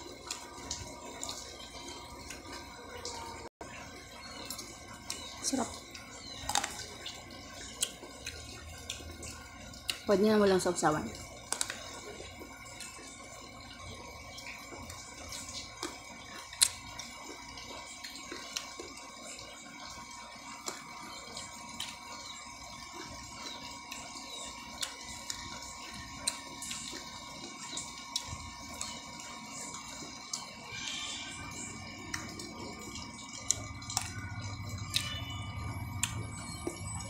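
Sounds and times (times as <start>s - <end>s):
person chewing fruit: 6.4s - 10.0s, 11.2s - 13.2s, 14.7s - 19.0s, 20.5s - 22.3s, 22.9s - 29.0s, 29.7s - 37.0s.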